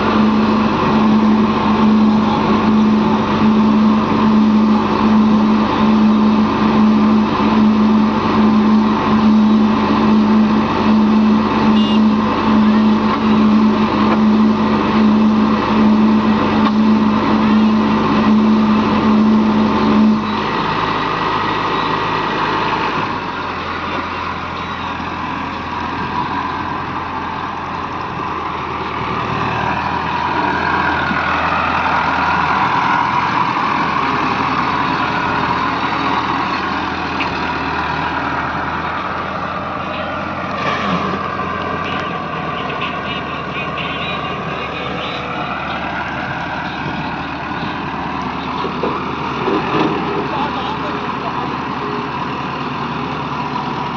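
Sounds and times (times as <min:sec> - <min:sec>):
heavy diesel engines running: 0:00.0 - 0:53.9.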